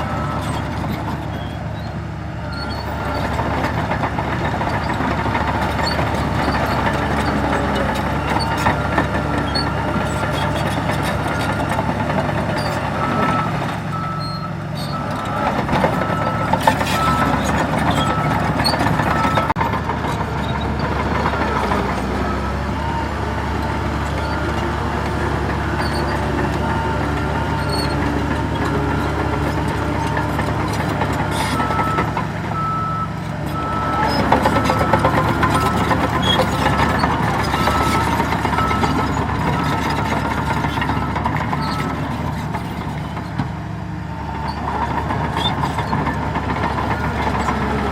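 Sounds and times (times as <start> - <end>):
diesel engine running: 0.0 - 47.9
reversing alarm beeping: 11.2 - 19.6, 31.5 - 39.9.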